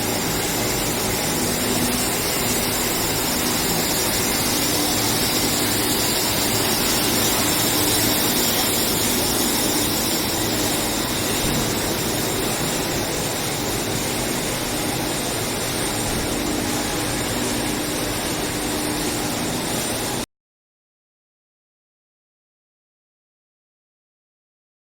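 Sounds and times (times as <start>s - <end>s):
industrial machinery hiss: 0.0s - 20.2s.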